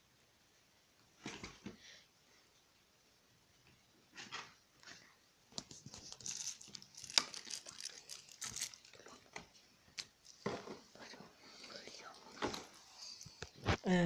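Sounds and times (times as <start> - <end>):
packaging crinkling and tearing: 5.7 - 9.3.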